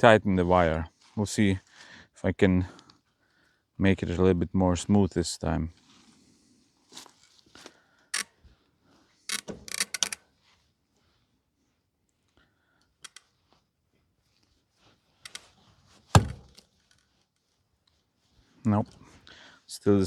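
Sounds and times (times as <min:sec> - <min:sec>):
wire tightener metallic clicks: 0:09.3 - 0:10.2, 0:13.0 - 0:13.3, 0:15.3 - 0:15.5
loud thunk: 0:16.2 - 0:16.5.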